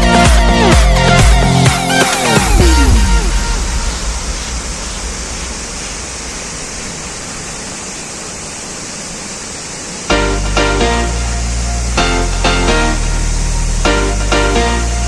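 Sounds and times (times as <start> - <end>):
loud music with a beat: 0.0 - 4.6
waterfall rushing: 0.6 - 15.0.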